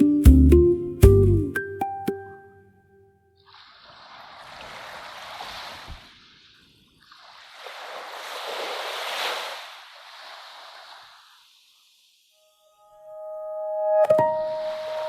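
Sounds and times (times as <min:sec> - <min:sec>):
ocean waves washing in: 0:03.4 - 0:12.4, 0:14.2 - 0:15.0.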